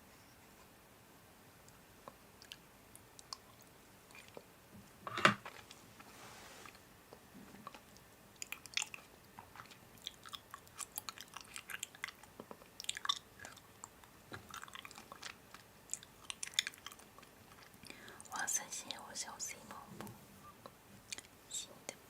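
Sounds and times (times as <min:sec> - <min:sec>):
person chewing crunchy food: 0:03.2 - 0:04.4, 0:07.6 - 0:17.9.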